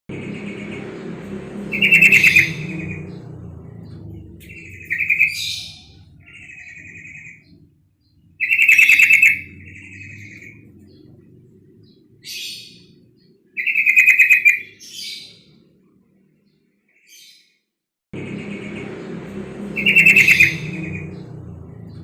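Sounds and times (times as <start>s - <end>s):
bird chattering trills: 0.1s - 11.2s, 18.2s - 22.0s.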